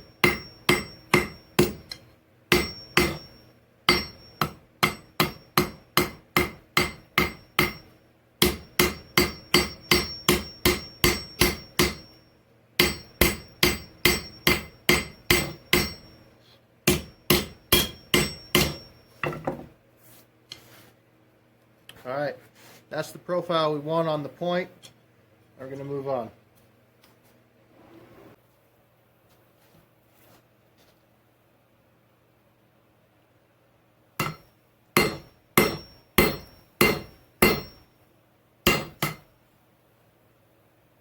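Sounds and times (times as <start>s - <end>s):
hammer striking steel on anvil: 0.0s - 12.2s, 12.8s - 19.6s, 34.2s - 37.9s, 38.6s - 39.3s.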